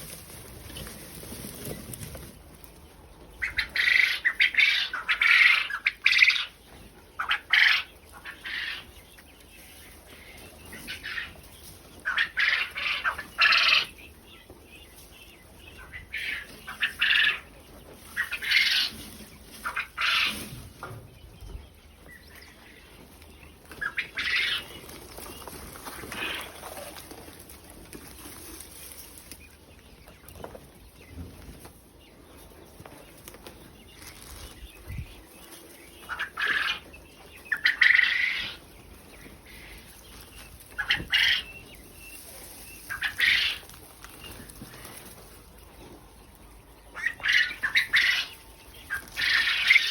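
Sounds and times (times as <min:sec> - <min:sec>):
quail calling: 0:03.4 - 0:06.6, 0:07.2 - 0:08.9, 0:12.0 - 0:14.0, 0:15.7 - 0:17.5, 0:18.1 - 0:19.0, 0:19.6 - 0:20.5, 0:23.8 - 0:24.8, 0:25.8 - 0:27.1, 0:35.9 - 0:38.7, 0:40.6 - 0:41.9, 0:42.8 - 0:43.8, 0:46.8 - 0:49.9.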